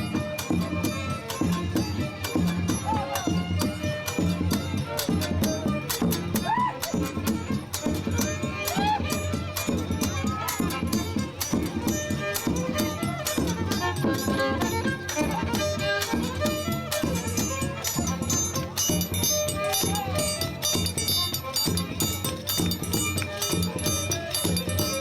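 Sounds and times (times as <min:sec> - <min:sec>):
folk melody instrument: 0:00.0 - 0:25.0
rattling percussion beat: 0:00.0 - 0:25.0.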